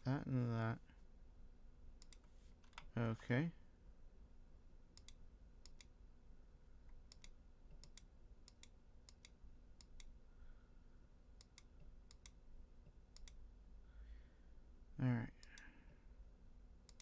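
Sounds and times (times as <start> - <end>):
computer mouse clicks: 2.0 - 2.9, 5.0 - 6.0, 6.9 - 10.1, 11.4 - 12.4, 13.1 - 13.4.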